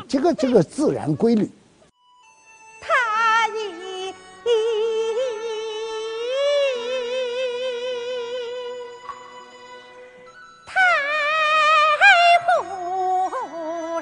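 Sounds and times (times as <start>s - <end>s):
sustained instrumental accompaniment: 1.9s - 14.0s
high voice opera singing: 10.7s - 14.0s.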